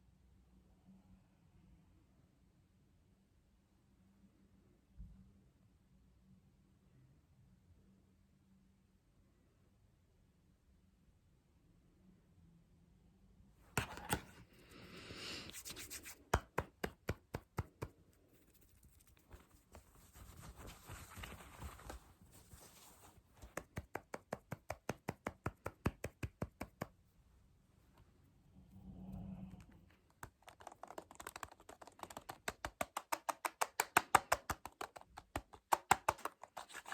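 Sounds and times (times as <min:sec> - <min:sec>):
hand tapping: 0:13.8 - 0:14.4, 0:15.5 - 0:27.0, 0:30.1 - 0:36.9
hand scratching: 0:13.8 - 0:26.9, 0:29.9 - 0:36.9.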